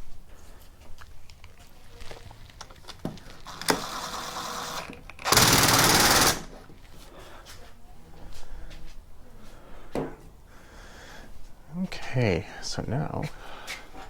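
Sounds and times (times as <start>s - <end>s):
power tool rattling: 3.4s - 6.6s.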